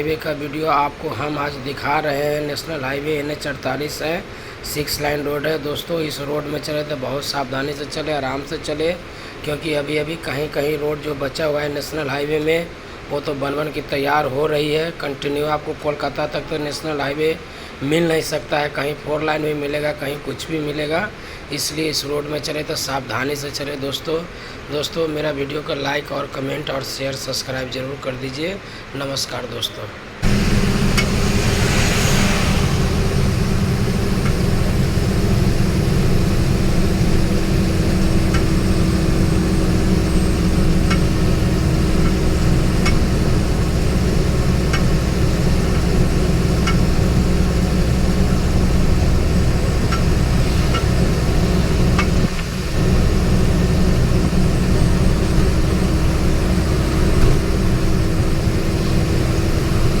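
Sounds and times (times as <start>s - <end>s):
steady low hum: 30.2s - 60.0s
vehicle engine and road rumble: 30.2s - 60.0s.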